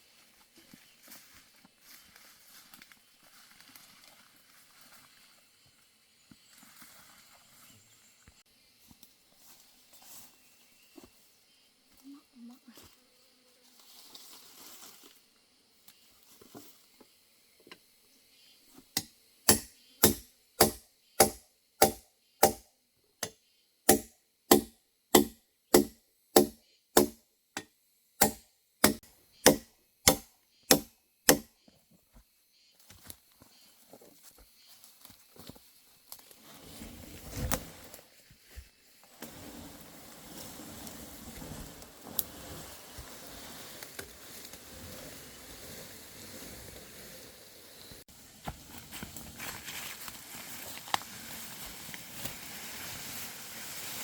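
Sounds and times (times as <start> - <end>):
chopping wood: 19.0 - 27.2, 28.2 - 31.5.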